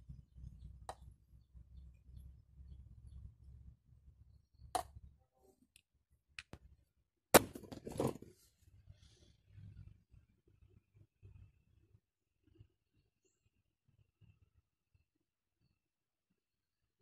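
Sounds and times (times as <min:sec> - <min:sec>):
objects clattering: 0:07.4 - 0:08.4.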